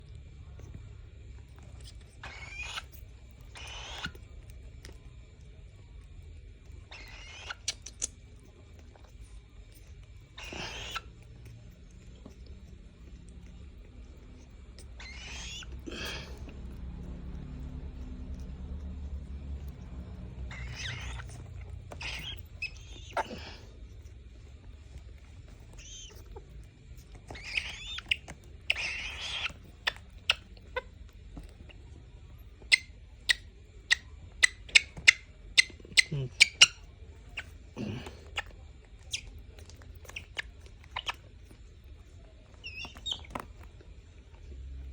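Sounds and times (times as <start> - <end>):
steady low hum: 0.0 - 44.9
falcon squeaky call: 2.2 - 2.9, 15.0 - 15.7, 20.5 - 21.4, 22.0 - 23.3, 27.3 - 29.6
high squeaky animal calls: 2.2 - 4.2, 6.9 - 8.0, 10.3 - 11.2, 14.8 - 16.2, 20.1 - 23.6, 25.7 - 26.5, 27.2 - 30.9, 32.7 - 38.5, 42.6 - 43.3
beak clicking and snapping: 6.9 - 9.8, 27.0 - 31.6.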